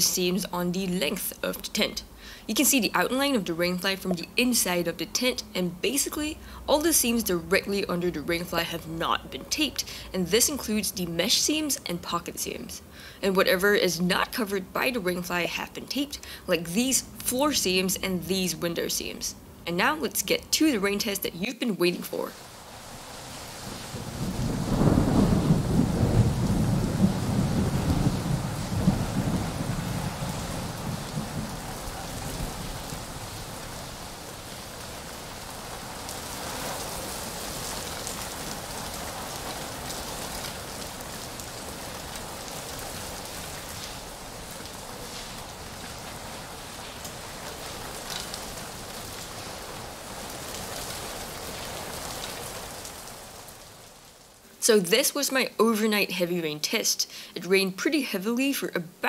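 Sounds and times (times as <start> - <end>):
heavy rain pouring: 0.0 - 21.2, 22.0 - 54.7
thunder rolling: 22.9 - 52.8.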